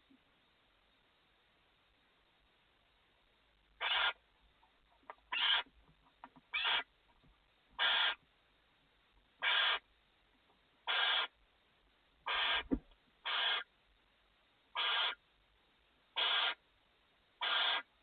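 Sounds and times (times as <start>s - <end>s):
owls rasping hiss: 3.8s - 4.2s, 7.8s - 8.2s, 9.4s - 9.8s, 10.9s - 11.3s, 12.3s - 13.7s, 14.8s - 15.2s, 16.2s - 16.6s, 17.4s - 17.9s.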